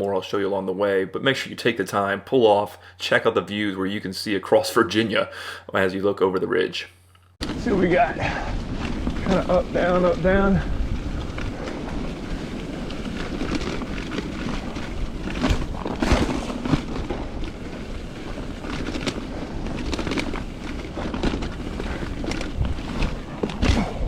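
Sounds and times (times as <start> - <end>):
bike rattling and knocking: 7.4 - 24.0
bike tyre noise on dirt: 7.4 - 24.0
wind rumbling on microphone: 7.4 - 24.0.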